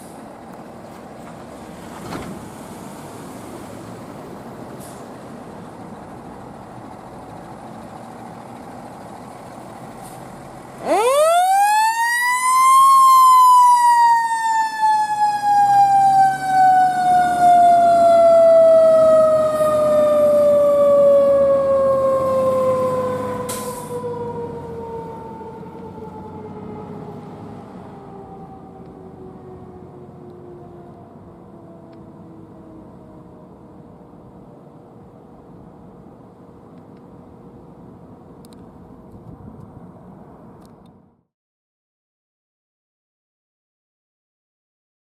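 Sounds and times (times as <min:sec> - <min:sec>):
low truck engine noise: 0:00.0 - 0:41.3
fire engine siren: 0:10.8 - 0:34.1.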